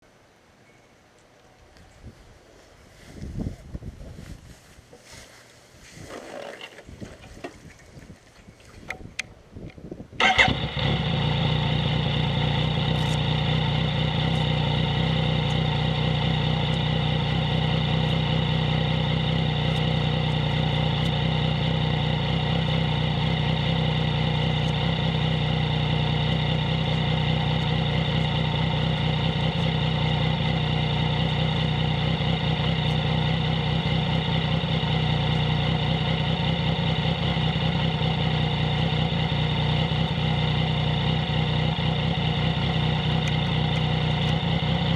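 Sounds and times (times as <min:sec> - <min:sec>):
motorcycle engine idling: 0:10.2 - 0:44.9.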